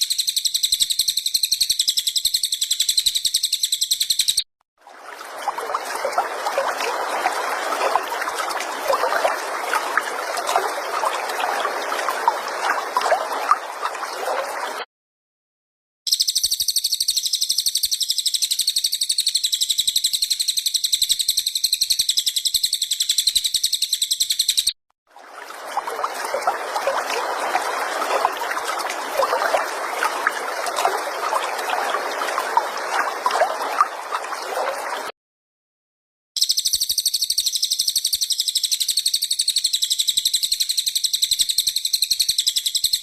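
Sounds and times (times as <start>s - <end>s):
faint chirps: 0.0s - 4.4s, 16.1s - 24.7s, 36.4s - 43.0s
songbird high-pitched trill: 0.0s - 4.4s, 16.1s - 24.7s, 36.4s - 43.0s.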